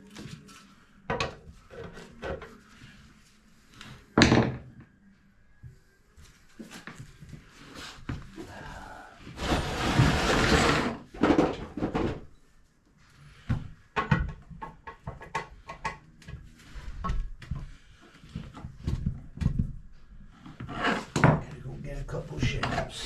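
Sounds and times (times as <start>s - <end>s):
loud scraping rush: 9.4s - 11.0s.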